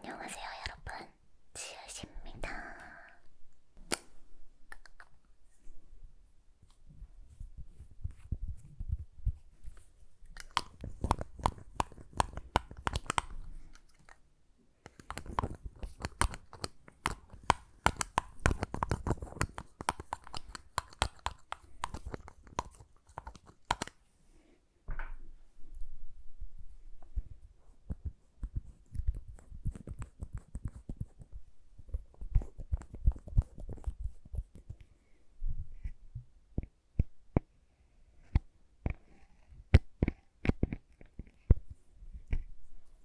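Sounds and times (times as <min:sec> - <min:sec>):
sticky lip balm crackling: 0:10.3 - 0:14.2, 0:14.9 - 0:24.0.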